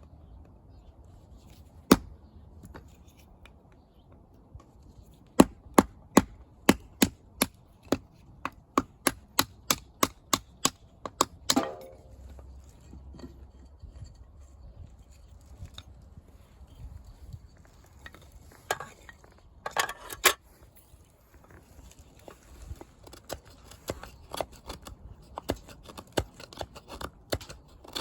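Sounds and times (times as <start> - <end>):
axe chopping firewood: 1.8 - 2.2, 5.4 - 12.4, 23.2 - 28.0.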